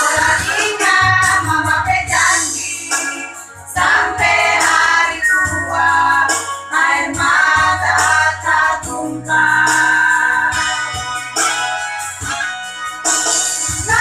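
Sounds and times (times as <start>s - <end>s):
women's choir singing: 0.0s - 10.5s
instrumental backing: 0.0s - 14.0s.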